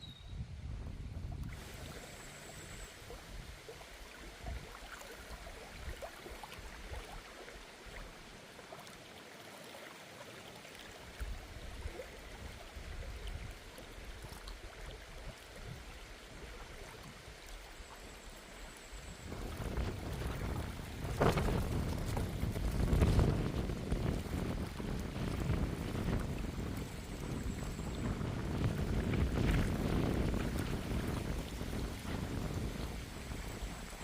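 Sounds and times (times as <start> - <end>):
water splashes: 1.2 - 34.0
river water rushing: 1.5 - 12.8.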